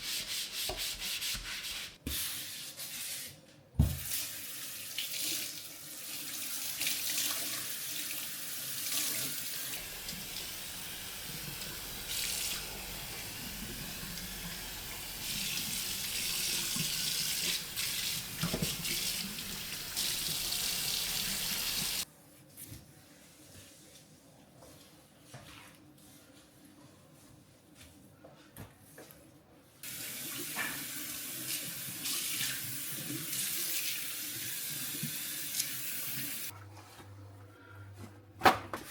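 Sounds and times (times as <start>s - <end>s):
tap running into sink: 12.1s - 22.0s.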